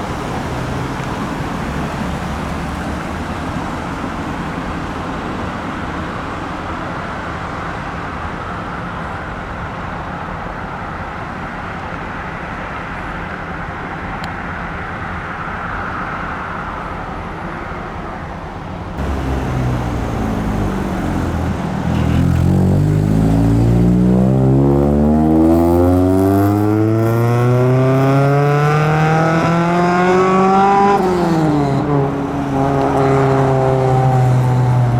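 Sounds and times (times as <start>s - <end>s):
road noise: 0.0s - 34.9s
car engine accelerating: 19.0s - 34.9s.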